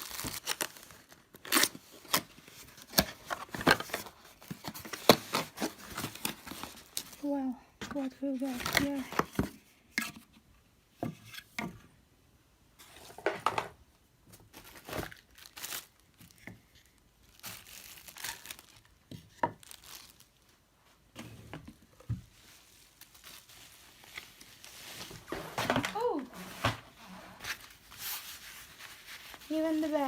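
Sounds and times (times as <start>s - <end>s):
packaging crinkling and rustling: 0.0s - 9.6s, 14.3s - 20.6s, 22.2s - 30.0s.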